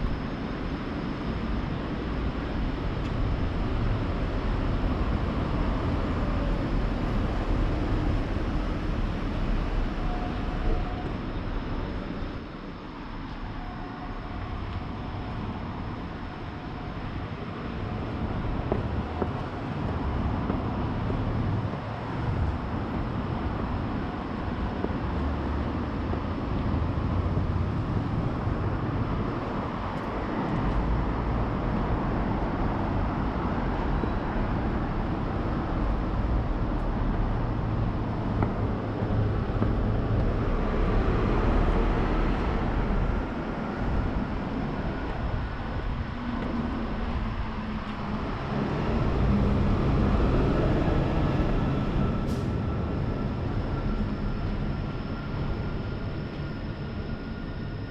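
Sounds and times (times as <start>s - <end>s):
faint steady whine: 0.0s - 57.9s
vehicles passing rumble: 14.1s - 57.4s.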